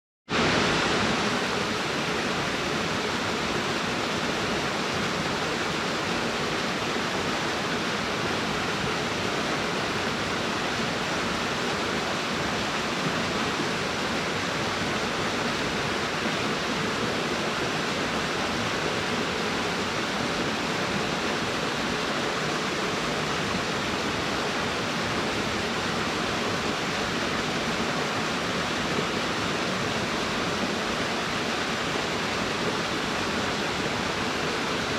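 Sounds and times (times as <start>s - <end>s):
waterfall rushing: 0.3s - 34.9s.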